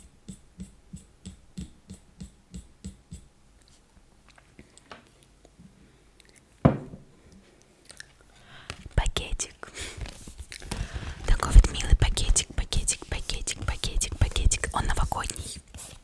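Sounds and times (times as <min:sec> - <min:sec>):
rhythmic asmr tapping: 0:00.0 - 0:03.8, 0:11.2 - 0:15.6
louder knock: 0:06.7 - 0:07.0.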